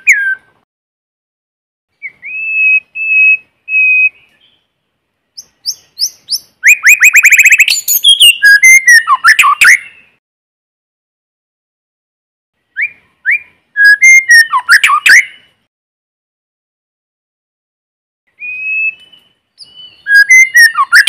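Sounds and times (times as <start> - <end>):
bird singing whistled notes: 0.0 - 0.6, 1.9 - 10.2, 12.7 - 15.6, 18.3 - 21.0
sharp clicks in birdsong: 4.1 - 4.6, 5.4 - 9.8.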